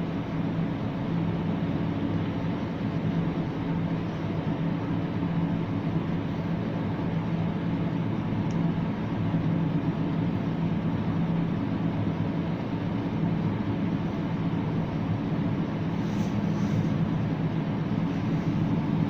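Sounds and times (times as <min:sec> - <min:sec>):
ferris wheel hum and rumble: 0:00.0 - 0:19.0.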